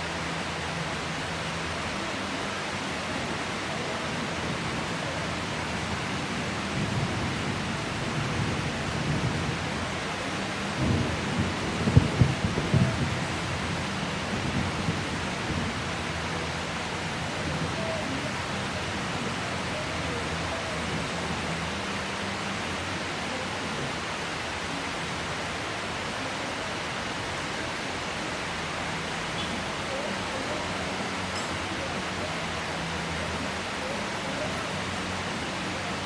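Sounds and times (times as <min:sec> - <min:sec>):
heavy rain falling: 0:00.0 - 0:36.0
thunder rumble: 0:06.5 - 0:16.0.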